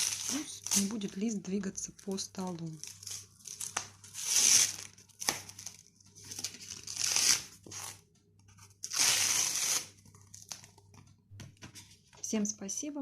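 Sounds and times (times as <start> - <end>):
tape peeling off paper: 2.8 - 8.0, 8.8 - 10.7.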